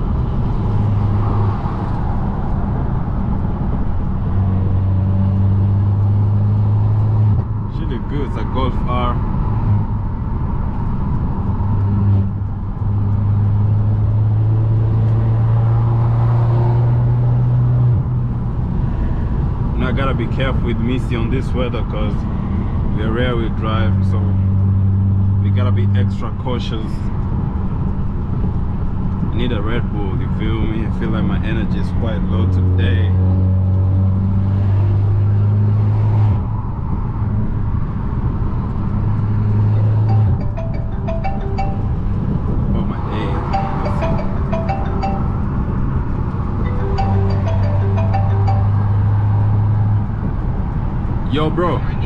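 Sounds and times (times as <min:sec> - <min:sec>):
car engine drone: 0:00.0 - 0:52.0.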